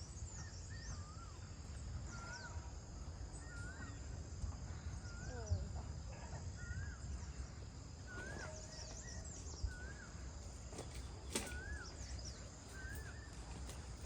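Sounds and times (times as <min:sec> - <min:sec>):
bird chirping: 0:00.0 - 0:14.0
bird whistling wavy note: 0:08.1 - 0:10.1.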